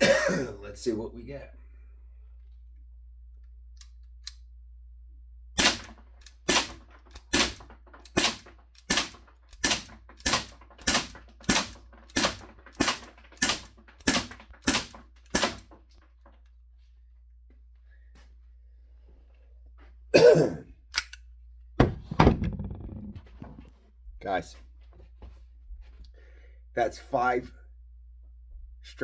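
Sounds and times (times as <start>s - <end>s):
bb pistol shots popping: 5.6s - 15.6s.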